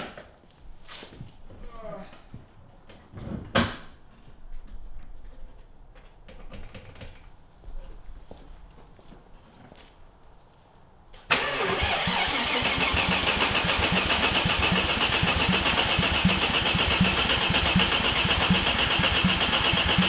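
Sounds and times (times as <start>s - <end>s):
starter motor cranking engine: 11.3s - 20.0s.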